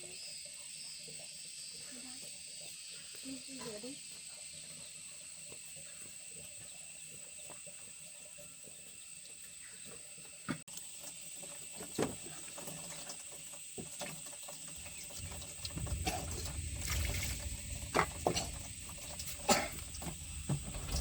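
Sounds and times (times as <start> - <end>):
running water: 10.1 - 21.0.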